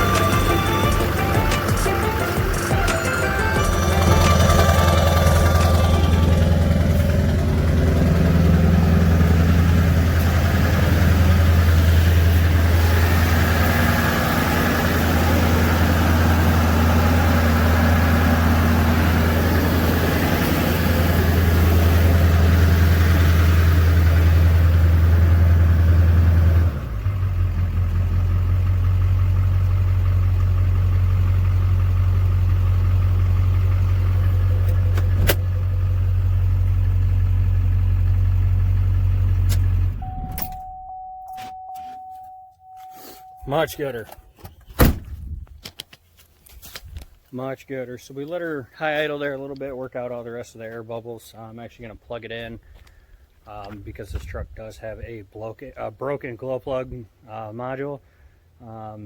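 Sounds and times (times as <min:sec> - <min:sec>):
diesel engine idling: 0:00.0 - 0:41.7, 0:42.6 - 0:44.4.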